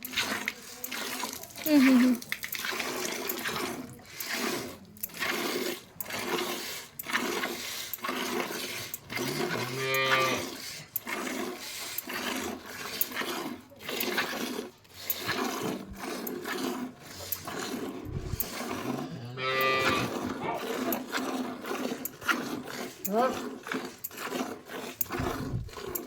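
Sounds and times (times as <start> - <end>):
milk squirting into a pail: 0.0 - 26.0
cow mooing: 9.2 - 10.6, 18.8 - 20.7.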